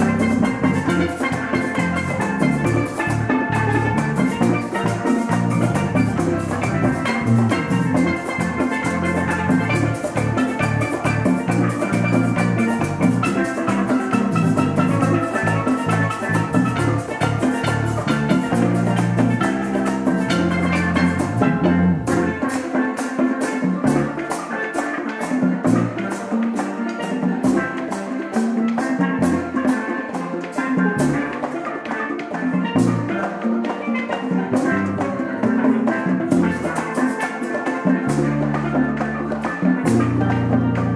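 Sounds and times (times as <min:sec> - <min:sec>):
drum kit beat: 0:00.0 - 0:22.7
band playing worship music: 0:00.0 - 0:40.9.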